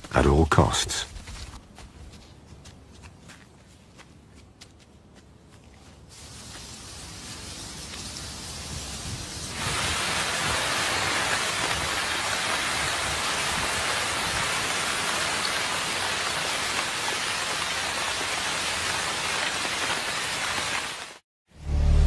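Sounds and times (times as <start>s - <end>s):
steady rain falling: 6.1s - 21.2s.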